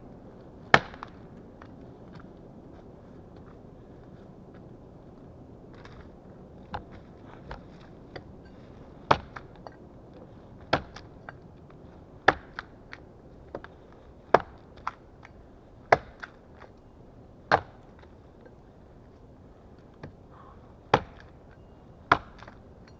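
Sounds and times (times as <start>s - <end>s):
axe chopping wood: 0.7s - 1.2s, 9.1s - 9.6s, 10.6s - 11.4s, 12.3s - 12.7s, 14.3s - 15.0s, 15.9s - 16.4s, 17.5s - 17.9s, 20.9s - 21.4s, 22.1s - 22.6s.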